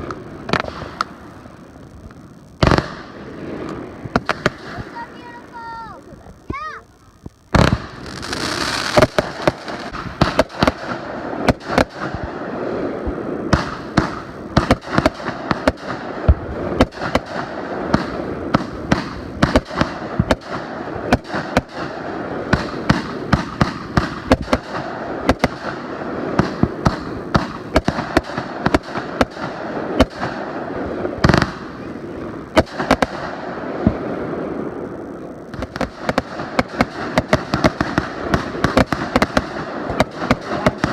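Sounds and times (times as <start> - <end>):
fireworks bangs and cracks: 0.0 - 40.9
fireworks crackling hiss: 0.0 - 40.9.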